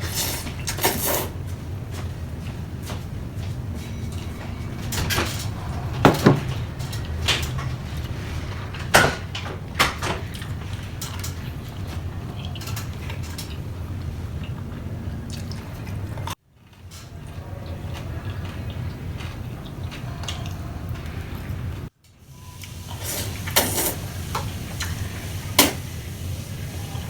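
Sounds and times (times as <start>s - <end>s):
steady low hum: 0.0s - 16.4s
food crunching: 10.2s - 21.5s.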